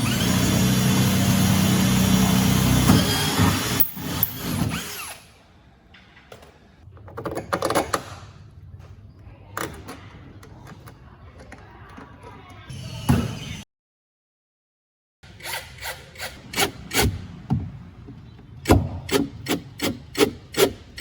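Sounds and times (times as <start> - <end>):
power tool motor: 0.0 - 5.3.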